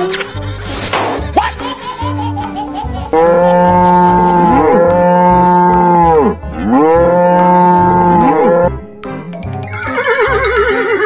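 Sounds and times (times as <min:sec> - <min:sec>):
cow mooing: 0:03.2 - 0:08.7.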